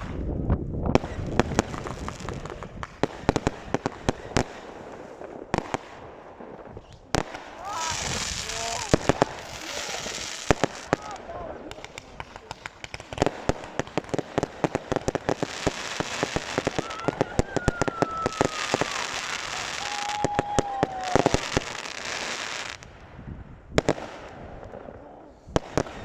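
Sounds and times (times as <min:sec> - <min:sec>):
firework bangs and crackling: 0:00.0 - 0:26.0
firework falling whistles: 0:16.4 - 0:21.8.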